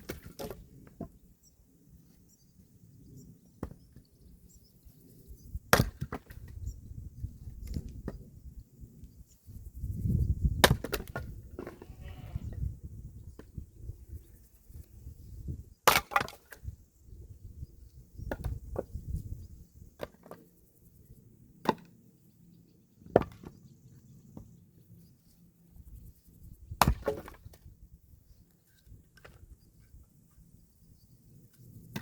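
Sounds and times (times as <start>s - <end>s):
axe chopping wood: 5.7s - 6.5s, 10.6s - 11.8s, 15.8s - 16.6s, 21.6s - 21.9s, 23.1s - 23.5s, 26.7s - 27.6s.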